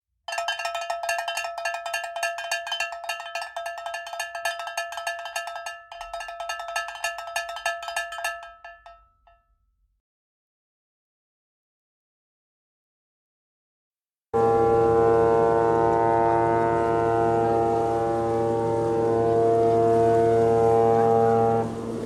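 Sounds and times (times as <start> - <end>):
bell struck rapidly: 0.3 - 9.0.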